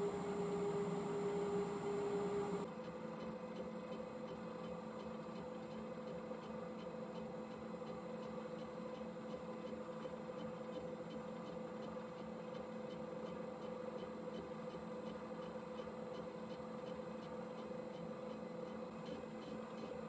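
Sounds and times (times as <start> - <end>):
metal lathe humming: 0.0 - 2.6.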